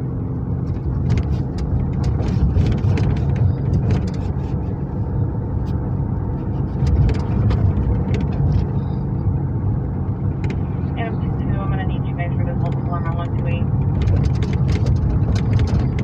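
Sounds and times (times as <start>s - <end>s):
car engine and tyre rumble: 0.0s - 16.0s
small clicks and rattles: 6.7s - 8.8s, 13.8s - 16.0s.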